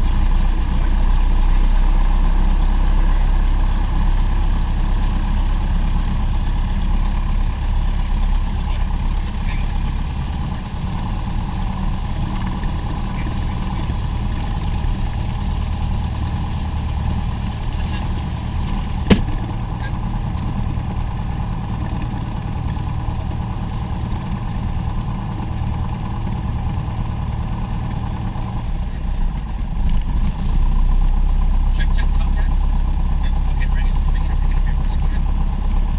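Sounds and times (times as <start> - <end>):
aircraft engine droning in cabin: 0.0 - 35.9.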